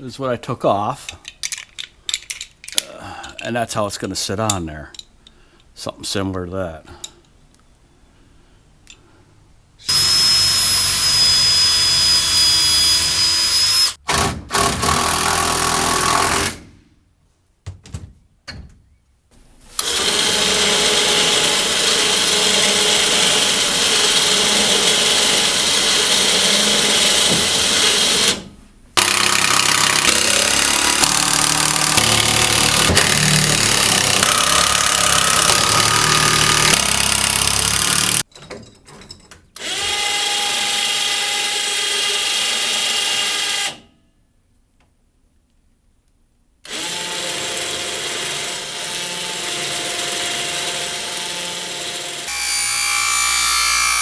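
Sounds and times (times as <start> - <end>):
power drill running: 9.8 - 14.0, 19.8 - 38.2, 39.6 - 43.8, 46.6 - 54.0.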